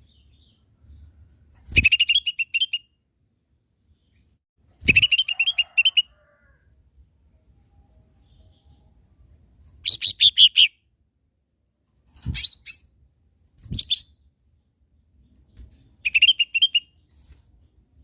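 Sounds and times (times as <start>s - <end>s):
bird chirping: 0.0s - 6.1s, 7.6s - 10.9s, 13.6s - 17.3s.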